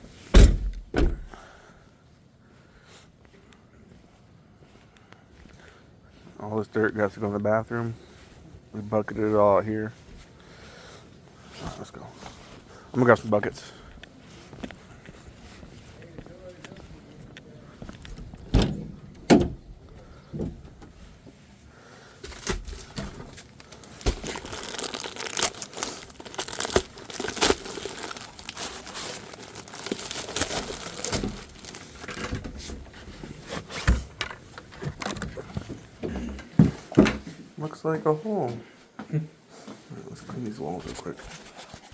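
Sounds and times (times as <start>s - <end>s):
dirt scraping and crunching: 22.1s - 34.6s.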